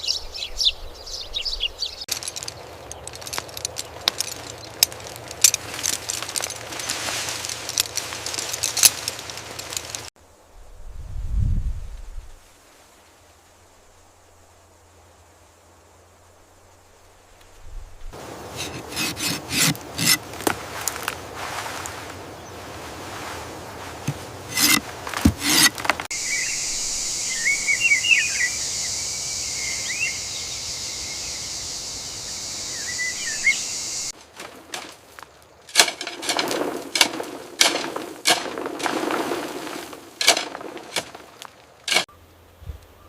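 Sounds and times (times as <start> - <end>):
birds chirping: 0.0 - 5.9, 25.8 - 34.1
steady high-pitched hiss: 0.0 - 38.2
irregular rustles: 2.1 - 10.1, 18.4 - 26.1, 34.1 - 42.1.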